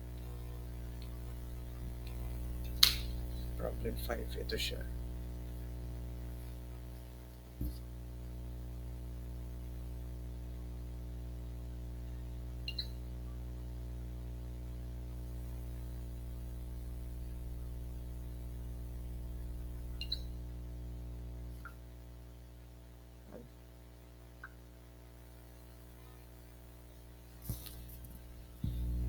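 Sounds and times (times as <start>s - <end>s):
electrical mains hum: 0.0s - 29.0s
sharp clicks: 2.0s - 3.2s.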